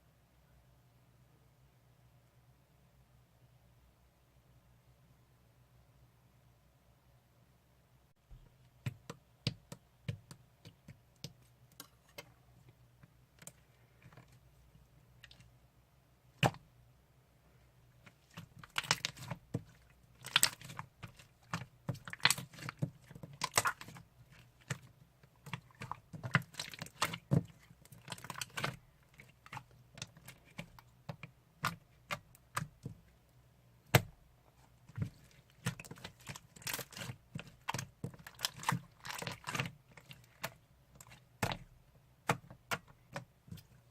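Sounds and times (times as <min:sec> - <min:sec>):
slime clicking and crackling: 0:18.2 - 0:33.0, 0:34.9 - 0:41.6.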